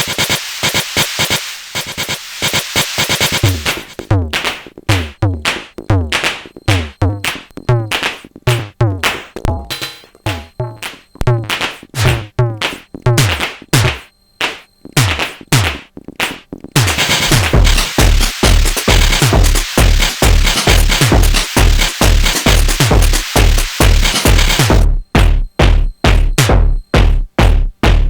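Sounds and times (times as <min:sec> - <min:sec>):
synthesized percussion thumps: 0:00.0 - 0:28.0
techno beat with heavy kick: 0:00.0 - 0:28.0.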